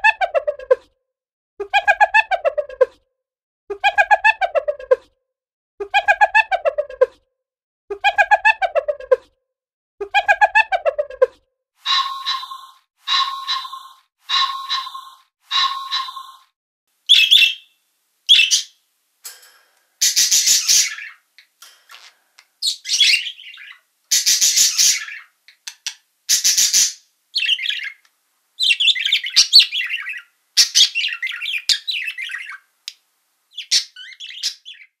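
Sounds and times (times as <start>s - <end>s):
macaws squawking: 11.8s - 16.4s, 20.0s - 21.2s, 21.9s - 28.0s.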